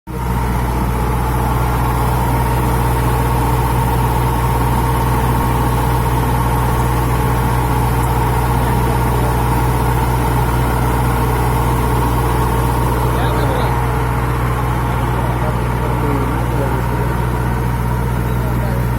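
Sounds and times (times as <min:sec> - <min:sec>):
drilling rig engine droning: 0:00.1 - 0:18.9.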